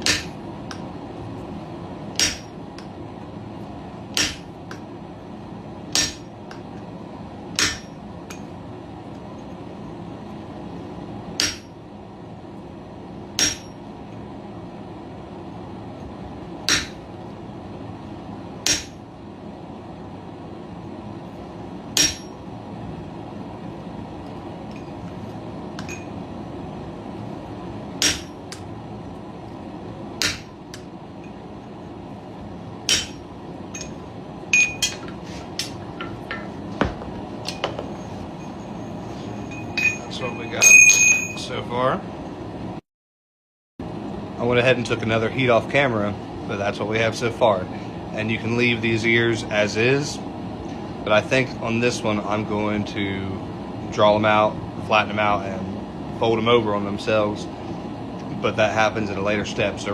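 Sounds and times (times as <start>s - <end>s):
steady background noise: 0.0s - 42.8s
hammer ringing on metal: 2.2s - 2.6s, 22.0s - 22.4s, 39.7s - 41.4s.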